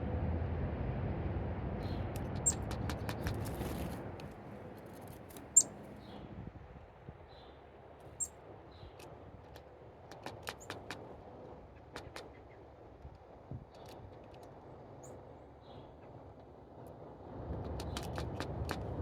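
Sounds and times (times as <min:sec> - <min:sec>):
low rumble: 0:00.0 - 0:04.6
high-pitched bird chirps: 0:01.8 - 0:03.3, 0:05.5 - 0:05.8.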